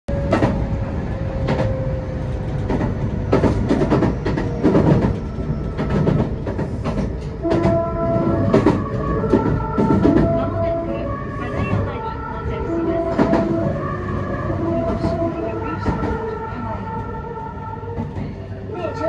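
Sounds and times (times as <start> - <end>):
train wheels clacking: 1.4 - 10.7
musical train horn: 7.3 - 19.0.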